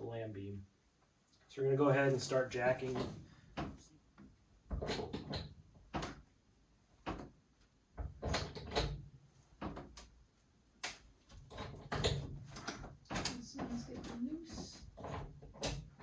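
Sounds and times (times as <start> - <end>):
hydraulic jack knocks and creaks: 4.7 - 6.3, 8.0 - 10.0, 11.4 - 16.0.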